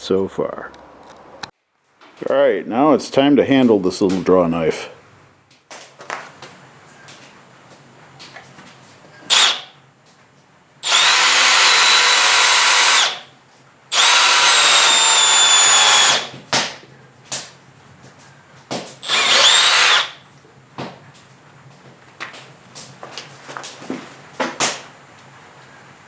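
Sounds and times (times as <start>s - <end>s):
electric drill whining: 10.8s - 13.2s, 13.9s - 16.3s, 19.0s - 20.2s.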